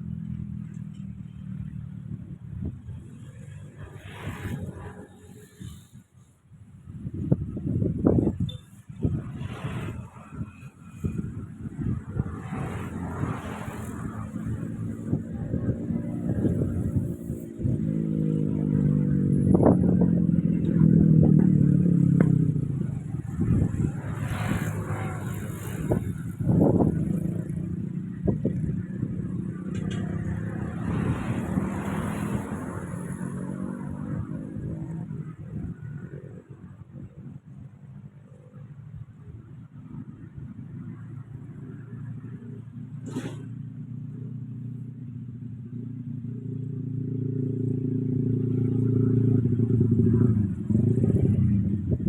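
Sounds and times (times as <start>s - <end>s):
wind gusts on microphone: 2.1s - 43.6s, 48.6s - 52.0s
strong wind through grass: 2.5s - 21.8s, 22.5s - 29.4s.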